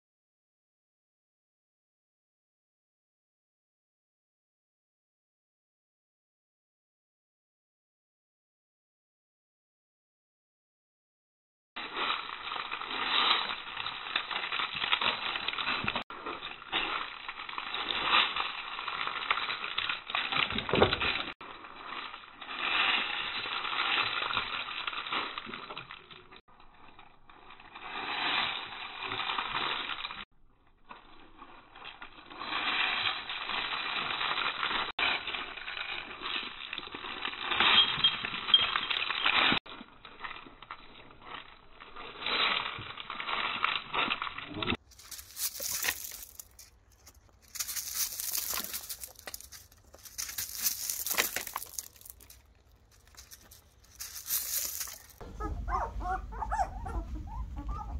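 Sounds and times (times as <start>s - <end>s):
rustling and crackling: 11.8s - 57.9s.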